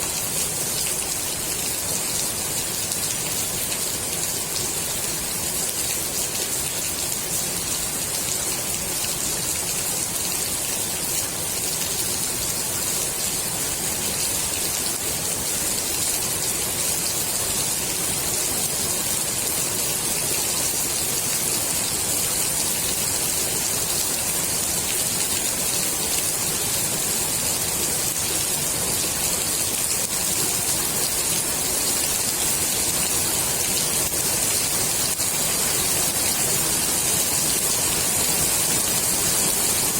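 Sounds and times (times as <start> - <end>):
rain falling on pool water: 0.0 - 39.9.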